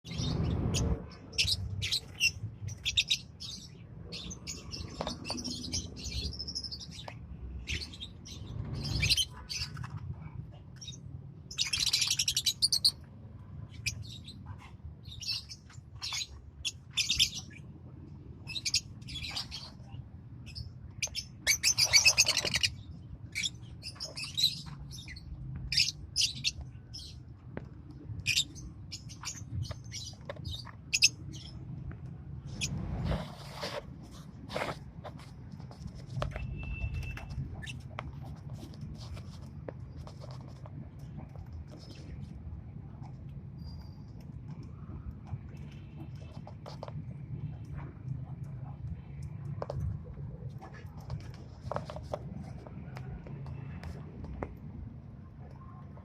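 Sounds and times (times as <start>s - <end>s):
lovebirds chirping: 0.1s - 17.7s, 18.4s - 27.3s, 28.2s - 31.8s.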